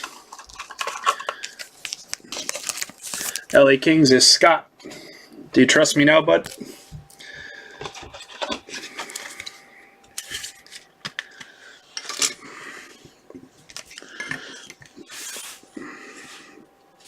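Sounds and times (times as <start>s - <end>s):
packaging rustling: 0.0s - 3.6s, 7.2s - 16.4s.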